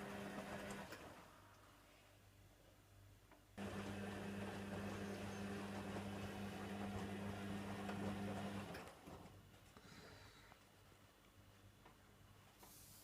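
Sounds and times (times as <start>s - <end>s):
washing machine drum humming: 0.0s - 1.0s, 3.6s - 8.8s
laundry and water churning: 3.6s - 9.0s.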